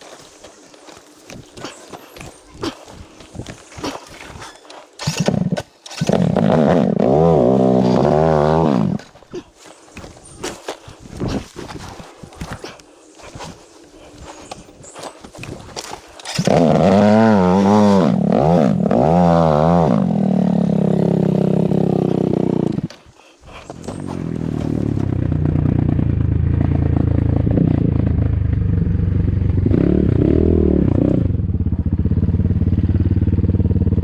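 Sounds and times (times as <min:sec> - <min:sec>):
dirt bike engine idling: 0:00.0 - 0:34.0
dirt bike engine revving: 0:00.9 - 0:12.0, 0:13.2 - 0:34.0.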